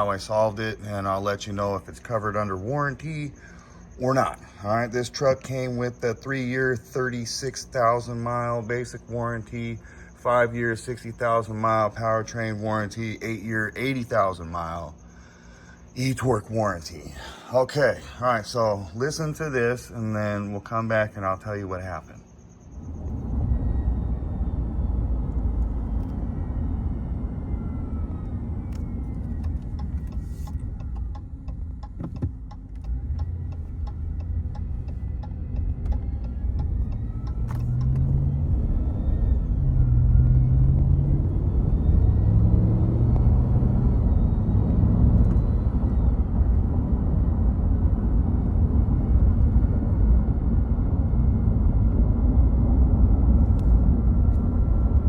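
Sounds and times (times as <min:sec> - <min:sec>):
engine and road rumble: 0:00.0 - 0:55.0
belt drive whine: 0:22.0 - 0:55.0.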